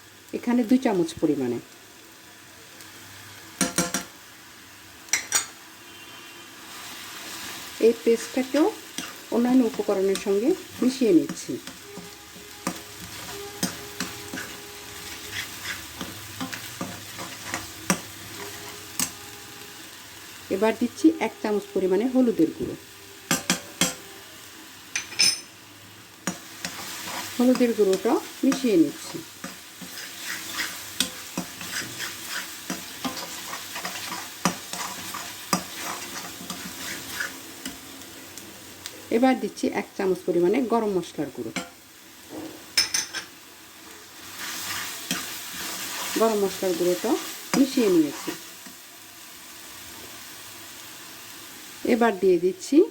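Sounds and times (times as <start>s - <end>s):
oil sizzling: 0.0s - 52.9s
spoon scraping and tapping pan: 3.6s - 4.1s, 5.1s - 5.6s, 8.9s - 10.4s, 11.2s - 19.2s, 23.3s - 24.0s, 24.9s - 25.5s, 26.2s - 37.8s
spoon stirring paste in pan: 11.2s - 18.1s, 29.4s - 37.4s.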